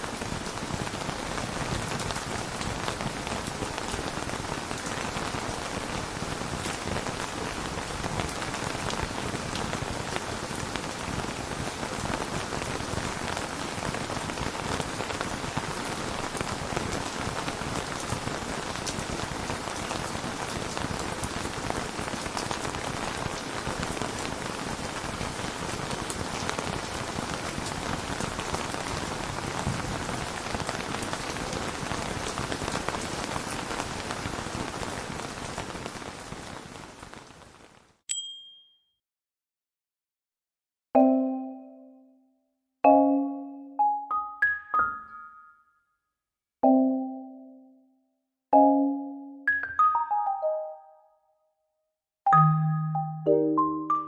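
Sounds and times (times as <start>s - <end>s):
steady rain falling: 0.0s - 38.0s.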